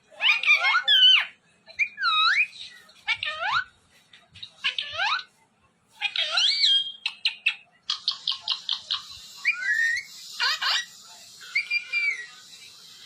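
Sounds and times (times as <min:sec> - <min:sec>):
parrot chirping: 0:00.2 - 0:03.7, 0:06.0 - 0:13.0
parrot gliding whistles: 0:09.2 - 0:12.5.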